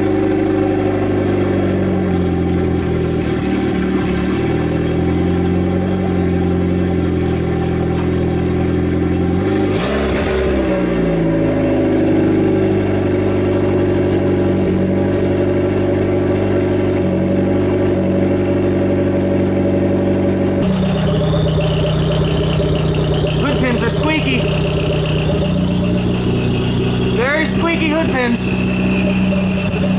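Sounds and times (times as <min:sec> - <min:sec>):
car engine idling and revving: 0:00.0 - 0:29.9
high whine: 0:20.6 - 0:29.9.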